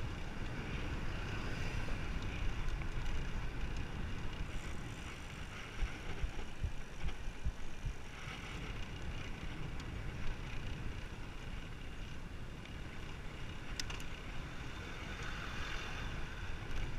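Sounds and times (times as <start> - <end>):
wind rushing on microphone: 0.0 - 16.9
faint clicks: 8.8 - 10.8, 13.5 - 14.2.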